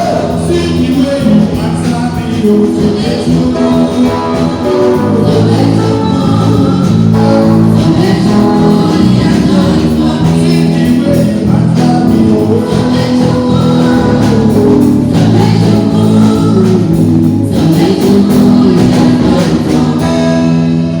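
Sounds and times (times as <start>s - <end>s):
steady percussion beat: 0.0s - 20.3s
gospel choir singing: 0.0s - 21.0s
instrumental accompaniment: 0.0s - 21.0s.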